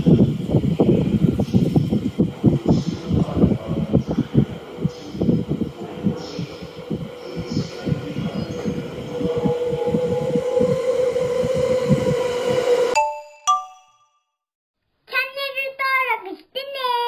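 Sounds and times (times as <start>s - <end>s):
steady hum: 0.0s - 13.0s
train rumbling and thumping: 0.0s - 13.0s
high singing voice: 2.2s - 13.8s.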